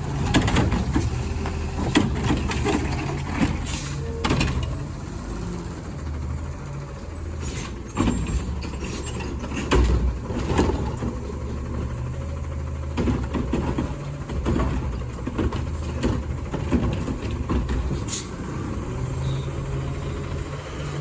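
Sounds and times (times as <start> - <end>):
diesel engine running: 0.0 - 21.0
clanks and knocks: 0.2 - 4.9, 7.6 - 12.0, 12.8 - 18.4.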